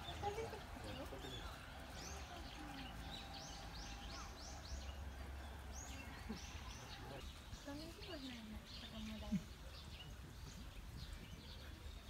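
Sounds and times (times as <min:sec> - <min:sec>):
bird chirping: 0:00.0 - 0:12.0
low outdoor rumble: 0:00.0 - 0:12.0.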